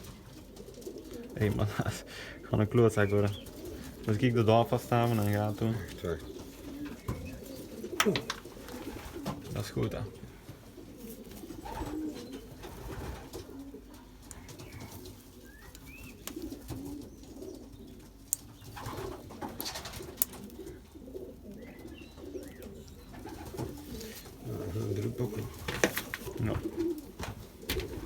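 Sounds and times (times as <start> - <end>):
pigeons cooing: 0.0 - 28.0.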